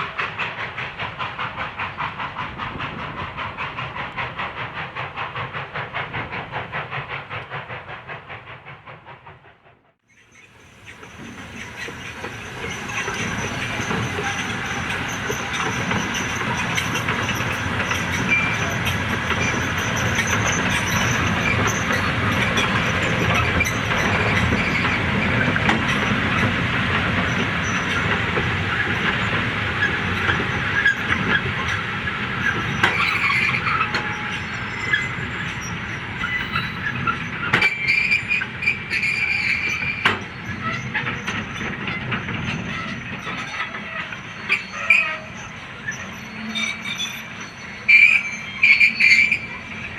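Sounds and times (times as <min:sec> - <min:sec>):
train wheels rumbling on rails: 0:00.0 - 0:49.9
wheel squeals: 0:10.1 - 0:26.5, 0:32.4 - 0:49.9.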